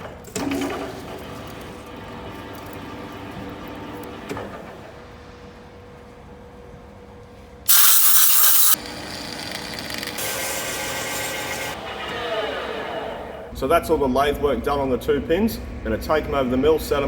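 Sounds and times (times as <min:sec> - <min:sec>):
compressed air hissing: 0:07.7 - 0:08.8
lathe humming: 0:07.7 - 0:11.8.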